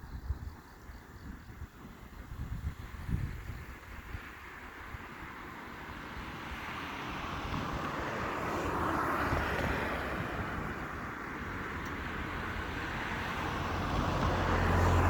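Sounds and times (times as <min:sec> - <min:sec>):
wind rumble on microphone: 0:00.0 - 0:15.0
vehicle passing: 0:05.6 - 0:15.0.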